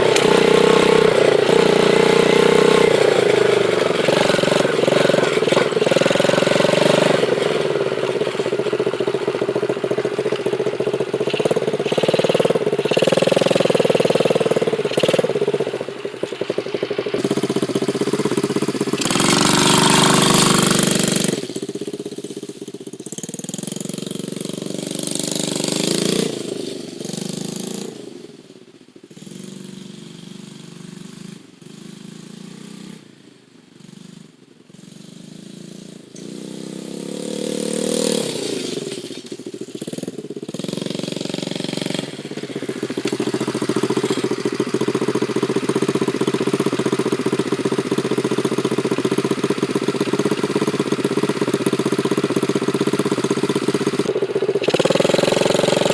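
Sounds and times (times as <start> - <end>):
dirt bike engine revving: 0.0 - 22.4, 23.2 - 28.4, 33.8 - 55.9.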